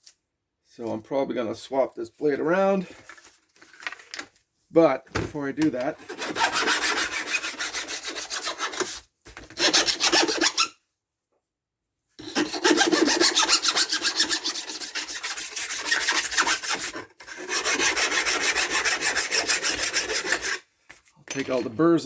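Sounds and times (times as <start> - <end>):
metal file scraping: 6.0 - 9.0, 9.6 - 10.8, 12.2 - 20.7.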